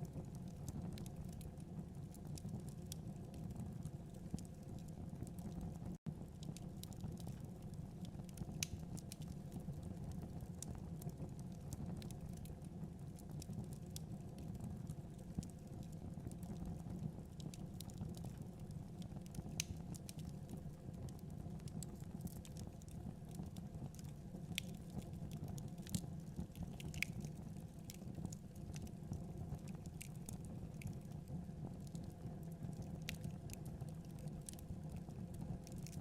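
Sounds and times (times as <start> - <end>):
fire crackling and popping: 0.0 - 36.0
low rumble of flame: 0.0 - 36.0.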